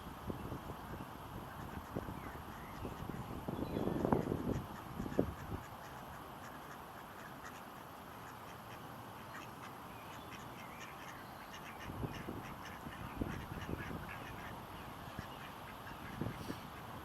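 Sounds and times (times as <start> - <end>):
wind thumps on microphone: 1.4 - 5.7, 11.9 - 14.5
ducks quacking: 1.5 - 3.2, 3.8 - 16.9.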